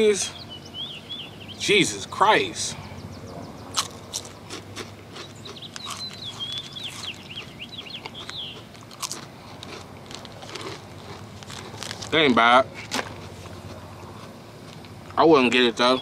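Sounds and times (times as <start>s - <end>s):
bird warbling song: 0.0s - 4.5s, 5.2s - 8.7s, 15.3s - 16.0s
crunching crisp wafer: 3.7s - 14.9s.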